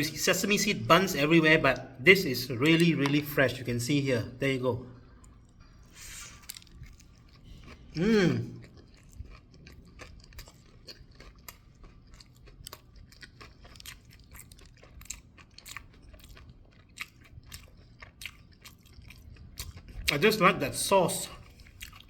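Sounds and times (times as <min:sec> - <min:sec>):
person chewing crunchy food: 0:05.0 - 0:20.5, 0:21.2 - 0:22.0.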